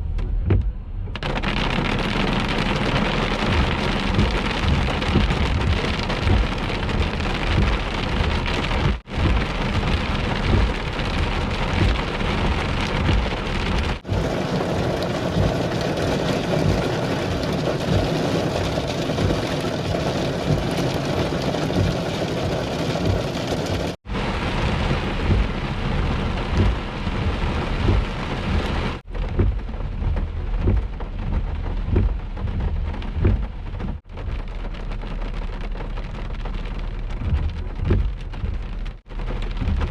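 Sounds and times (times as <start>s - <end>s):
thunder rumbling: 0.0s - 39.9s
heavy rain falling: 0.6s - 39.9s.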